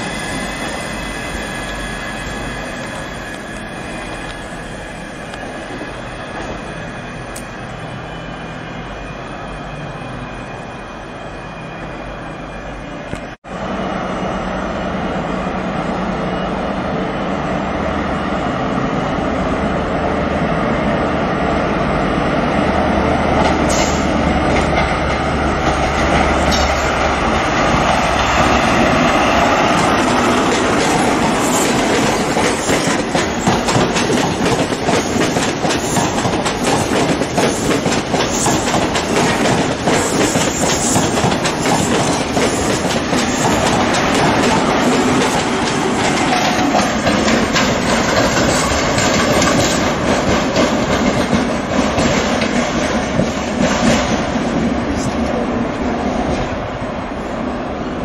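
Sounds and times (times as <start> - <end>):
wheel squeal: 0.0 - 13.0
diesel train engine under load: 0.0 - 58.0
train wheels clacking: 23.4 - 55.1.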